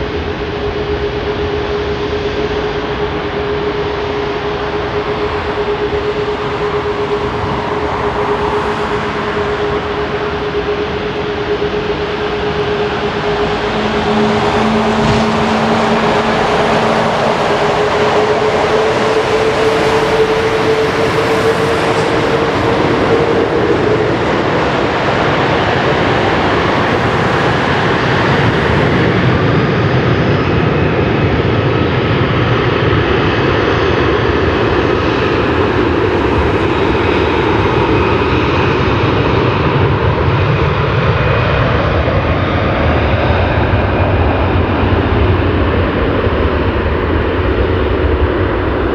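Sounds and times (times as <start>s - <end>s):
jet engines running: 0.0s - 48.9s
rising whine: 0.0s - 48.9s.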